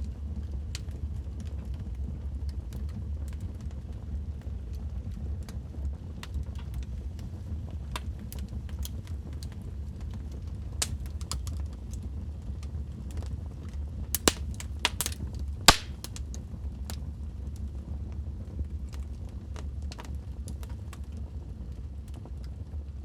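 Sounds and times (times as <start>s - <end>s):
low rumble of flames: 0.0s - 23.0s
logs crackling and popping: 6.2s - 12.0s, 14.1s - 17.0s.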